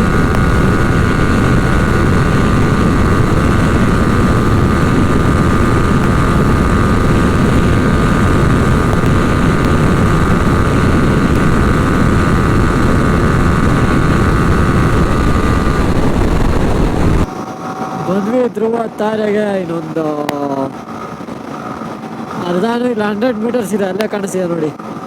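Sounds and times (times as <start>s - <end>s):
wind rush over microphone: 0.0s - 18.1s, 18.9s - 25.0s
motorcycle engine: 0.0s - 18.2s.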